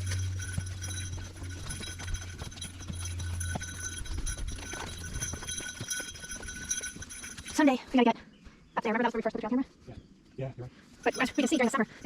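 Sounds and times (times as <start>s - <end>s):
footsteps on woodland trail: 0.0s - 8.8s.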